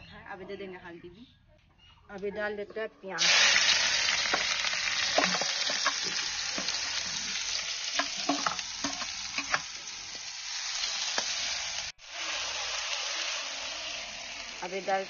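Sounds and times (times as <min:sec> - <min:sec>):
onions sizzling in oil: 0:03.2 - 0:15.0
ladle clinking on metal: 0:08.0 - 0:09.6.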